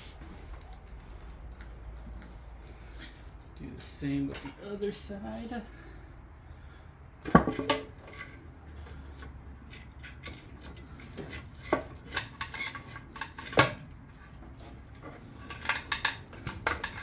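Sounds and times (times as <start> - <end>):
hand tools and metal parts clinking: 7.3 - 17.0.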